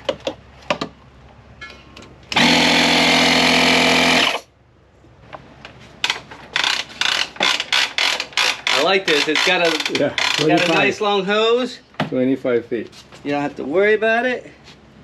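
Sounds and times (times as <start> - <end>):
air compressor motor humming: 2.3 - 4.5.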